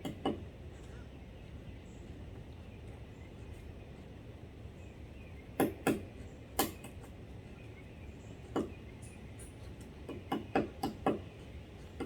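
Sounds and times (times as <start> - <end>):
woodpecker pecking wood: 5.6 - 7.0, 9.8 - 12.0.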